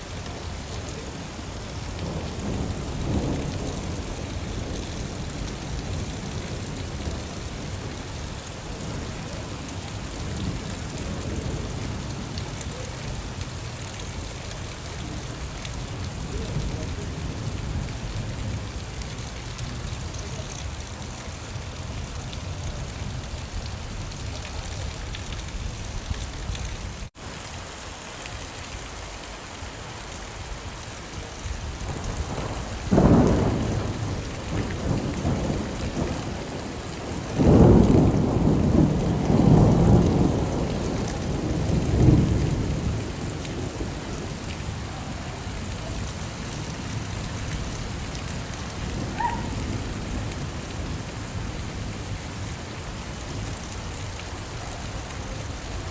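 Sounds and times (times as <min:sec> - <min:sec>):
rain falling: 0:00.0 - 0:55.9
thunder rumbling: 0:01.8 - 0:08.1, 0:31.6 - 0:52.4.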